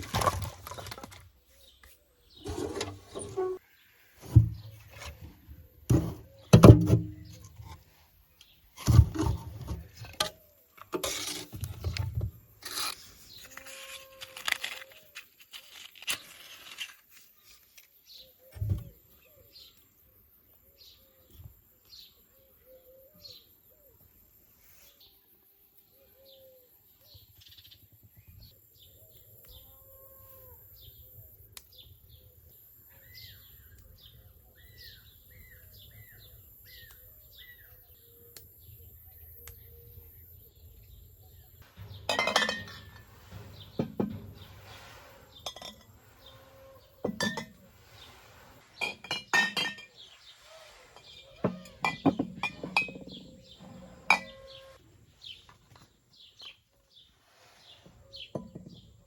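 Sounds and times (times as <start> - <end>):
birds chirping: 30.8 - 59.0
glassware clinking: 42.0 - 43.0, 47.1 - 47.6, 48.8 - 49.9.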